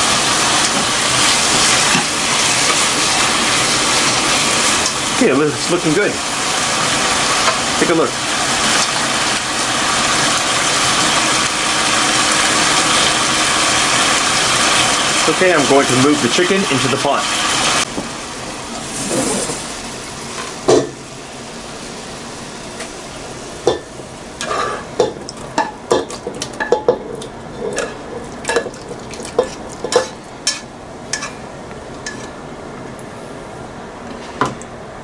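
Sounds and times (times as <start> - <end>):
chicken sizzling in hot oil: 0.0 - 31.4
utensil scraping against pan: 24.4 - 24.9, 29.3 - 31.4, 32.0 - 32.4.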